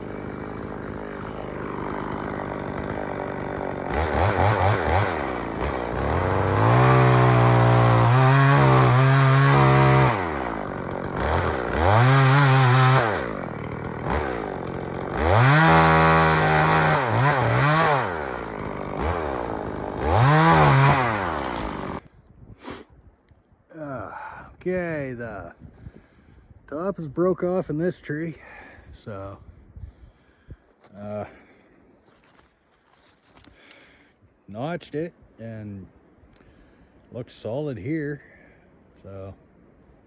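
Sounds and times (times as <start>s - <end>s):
chainsaw revving and idling: 0.0s - 22.0s.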